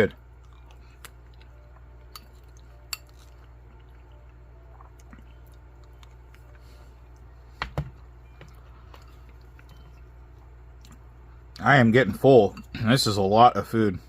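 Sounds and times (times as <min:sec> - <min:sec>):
steady low hum: 0:00.0 - 0:14.0
person chewing food: 0:00.3 - 0:11.1.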